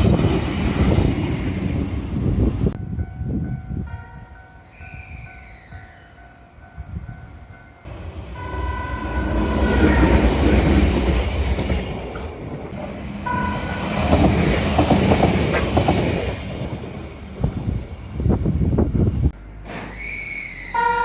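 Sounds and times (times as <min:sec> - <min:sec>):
train running rumble: 0:00.0 - 0:03.8, 0:07.9 - 0:19.8
train horn: 0:08.3 - 0:10.6, 0:13.3 - 0:13.8, 0:20.0 - 0:21.0
train wheel clatter: 0:09.2 - 0:17.7.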